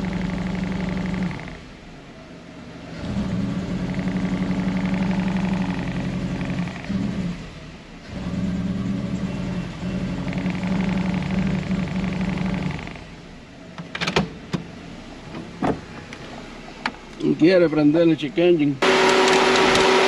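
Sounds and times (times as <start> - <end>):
car engine droning at raised revs: 0.0 - 13.8, 18.8 - 20.0.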